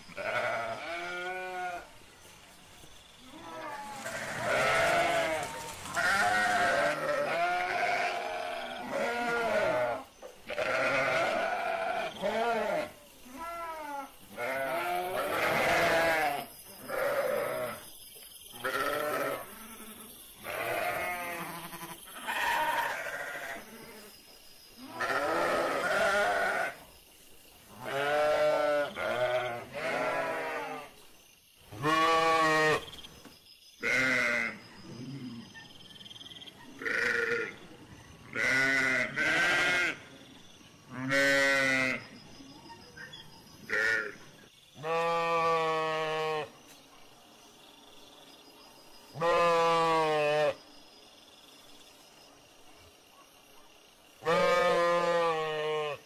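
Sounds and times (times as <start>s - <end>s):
sheep bleating: 0.1s - 1.9s, 3.4s - 17.8s, 18.6s - 23.9s, 24.8s - 26.8s, 27.8s - 30.9s, 31.8s - 32.8s, 33.8s - 34.6s, 36.8s - 37.6s, 38.3s - 40.0s, 40.9s - 42.0s, 44.8s - 46.5s, 49.2s - 50.6s, 54.2s - 56.0s.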